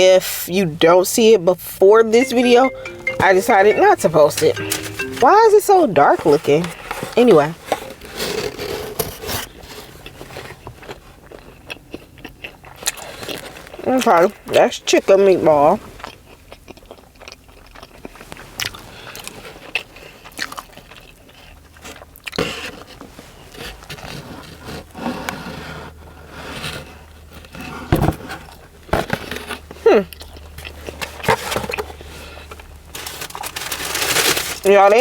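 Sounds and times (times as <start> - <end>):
chewing crunchy sandwich: 8.2 - 14.4, 15.8 - 34.4.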